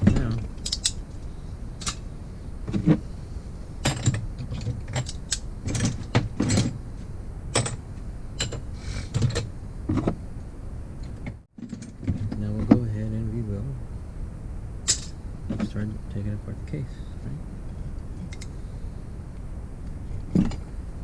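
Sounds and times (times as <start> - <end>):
metal tools clinking and knocking: 3.8 - 6.8, 14.9 - 15.2.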